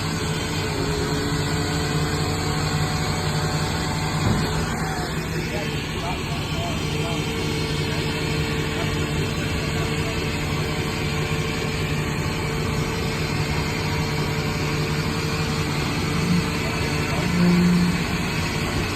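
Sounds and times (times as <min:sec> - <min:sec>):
truck engine idling: 0:00.0 - 0:18.9.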